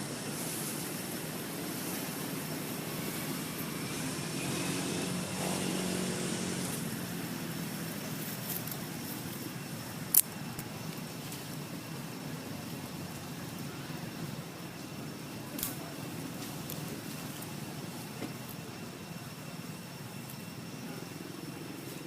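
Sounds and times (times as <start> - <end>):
traffic rumble: 0.0 - 22.0
vehicle passing: 0.4 - 8.4.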